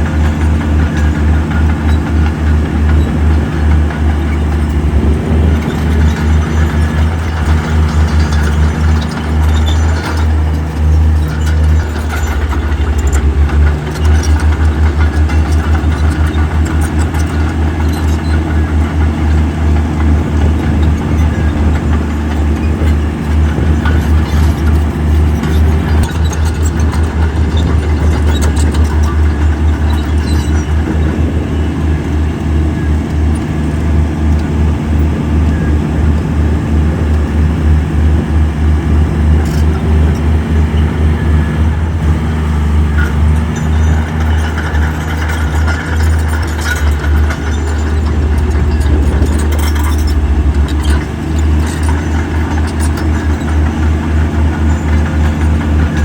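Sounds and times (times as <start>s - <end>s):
diesel engine throbbing: 0.0s - 56.0s
light metal clanks: 42.4s - 56.0s.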